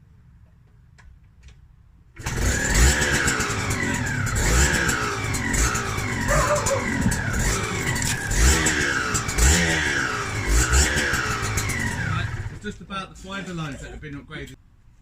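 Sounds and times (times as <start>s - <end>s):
two-stroke engine revving: 2.2s - 12.8s.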